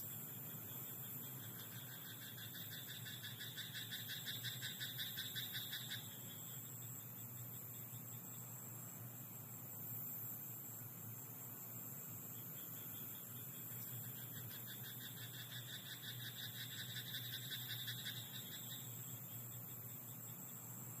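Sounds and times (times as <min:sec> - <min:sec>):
faint night ambience: 0:00.0 - 0:21.0
frog croaking: 0:01.4 - 0:06.5, 0:12.9 - 0:19.2.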